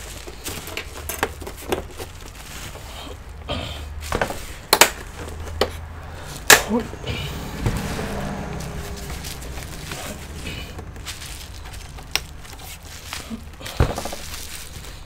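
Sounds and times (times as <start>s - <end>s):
plastic parts clicking: 0.0s - 2.4s
handling noise of parts: 0.0s - 6.9s, 7.5s - 15.0s.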